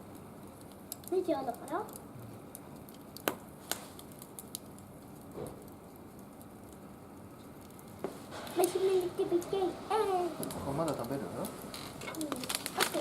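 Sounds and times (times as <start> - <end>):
firewood crackling in grill: 0.0 - 13.0.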